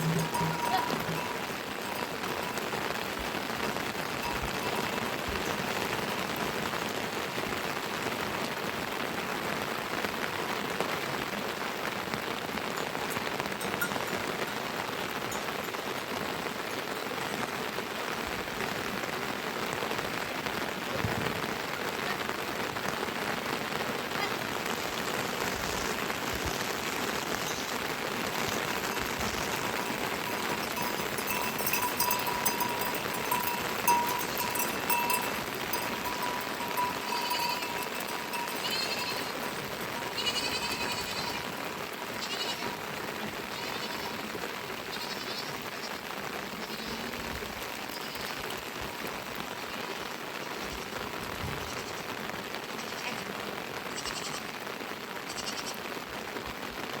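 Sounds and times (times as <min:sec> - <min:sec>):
sheep bleating: 0:00.0 - 0:02.0, 0:29.5 - 0:41.6, 0:42.2 - 0:45.8, 0:46.6 - 0:47.2, 0:52.8 - 0:53.2, 0:54.0 - 0:54.5, 0:55.3 - 0:55.8
steady rain falling: 0:00.0 - 0:57.0.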